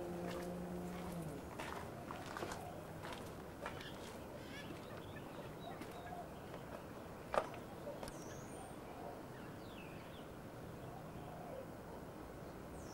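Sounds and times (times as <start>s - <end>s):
steady background hiss: 2.7s - 12.9s.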